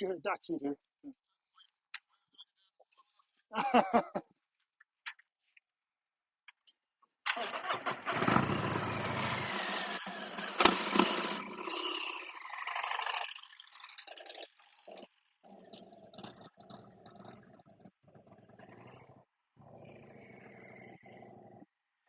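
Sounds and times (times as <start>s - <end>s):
motorcycle engine running: 7.8s - 15.0s.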